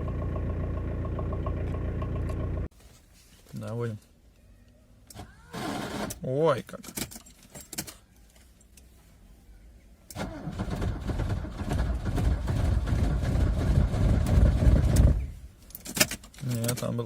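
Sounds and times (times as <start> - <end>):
diesel engine cranking: 10.1 - 15.3.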